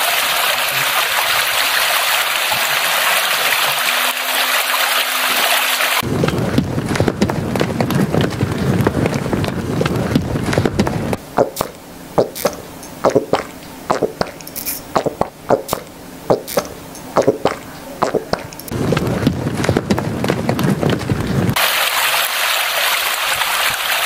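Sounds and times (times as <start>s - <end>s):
steady dense noise: 0.0s - 21.6s
sharp clicks and knocks: 9.4s - 21.1s.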